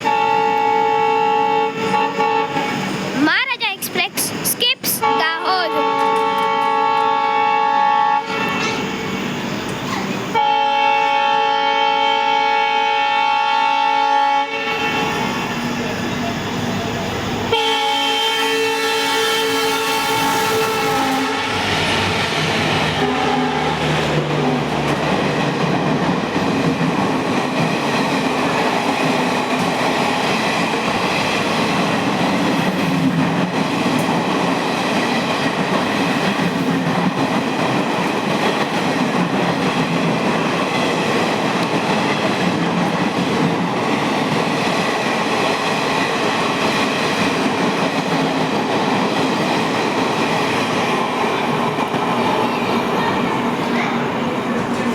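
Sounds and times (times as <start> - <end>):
train horn: 0.0 - 2.8, 5.0 - 9.2, 10.4 - 15.7, 17.5 - 21.9, 22.8 - 24.6
train wheels rushing on rail: 0.0 - 54.9.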